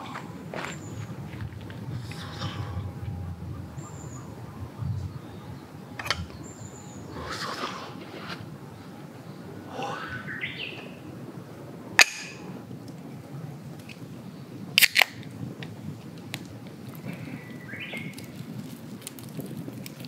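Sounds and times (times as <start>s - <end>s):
wild birds calling: 0.0s - 12.7s, 16.9s - 18.6s
steady low hush: 0.0s - 18.8s.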